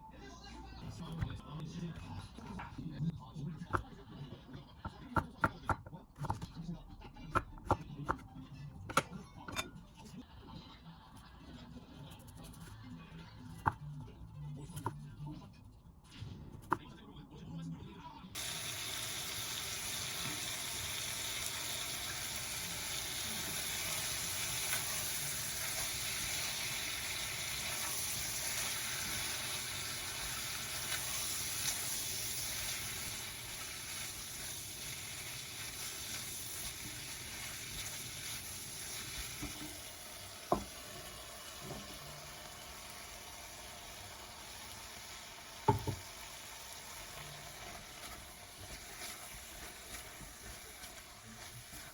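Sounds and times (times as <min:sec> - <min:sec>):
food sizzling in a frying pan: 0:18.4 - 0:51.9.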